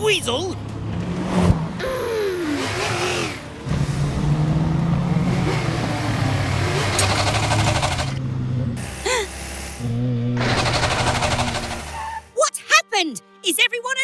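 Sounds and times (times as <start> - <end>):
fast rattling clatter: 6.9 - 8.2, 10.4 - 12.0
cartoon engine drone: 8.8 - 12.3.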